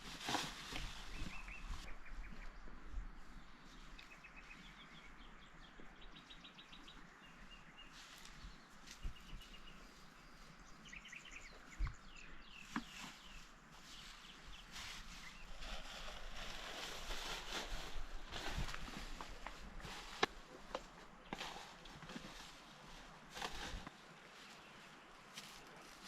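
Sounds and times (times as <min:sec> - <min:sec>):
faint outdoor hiss: 0:00.0 - 0:26.0
small birds chirping: 0:00.3 - 0:17.6.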